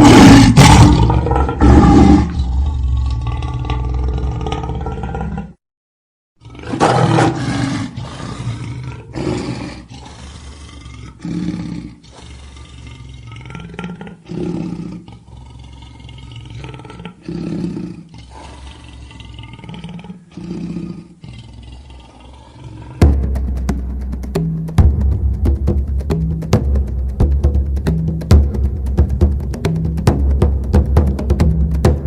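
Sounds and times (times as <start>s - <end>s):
big cat roaring: 0.0s - 5.6s, 6.4s - 23.2s.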